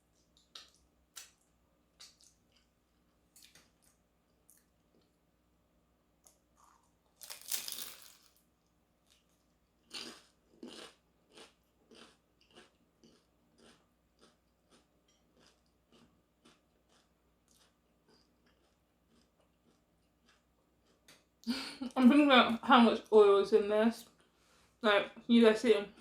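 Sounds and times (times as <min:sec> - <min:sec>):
biting into crispy pastry: 0:09.1 - 0:21.0
crunchy chewing: 0:09.1 - 0:21.2.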